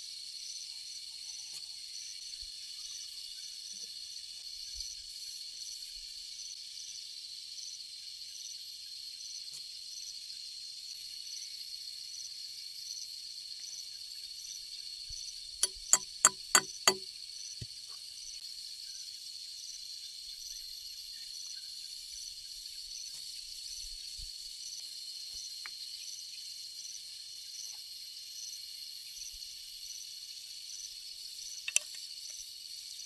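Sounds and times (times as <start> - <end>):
insect chirping: 2.0 - 6.5, 15.6 - 17.0, 18.6 - 33.0
sharp ringing knocks: 15.6 - 17.0.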